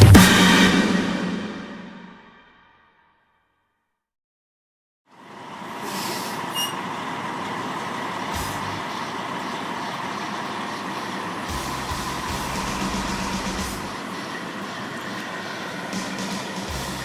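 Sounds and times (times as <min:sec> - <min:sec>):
heavy trucks running: 0:05.1 - 0:17.0
short air hisses: 0:05.8 - 0:06.9.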